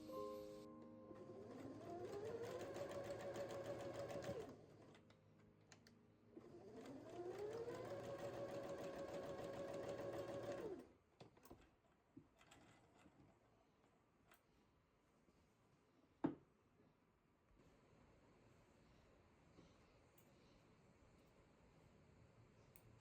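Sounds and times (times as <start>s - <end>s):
electric sewing machine stitching: 1.3s - 4.6s, 6.4s - 10.9s.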